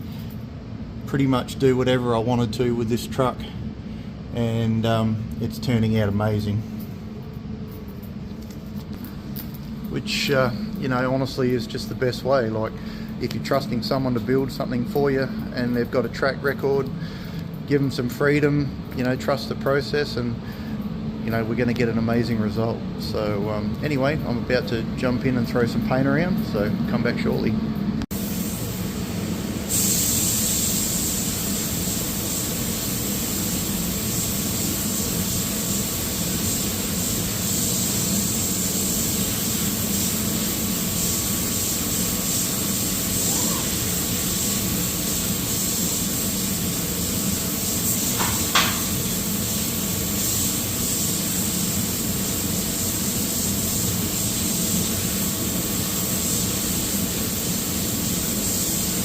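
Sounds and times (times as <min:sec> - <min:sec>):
air spray gun hissing: 0:28.1 - 0:59.0.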